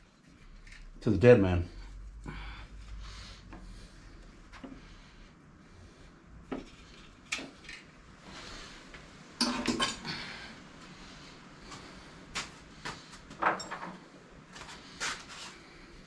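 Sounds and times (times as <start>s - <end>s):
metal tools clinking and knocking: 13.4s - 14.0s.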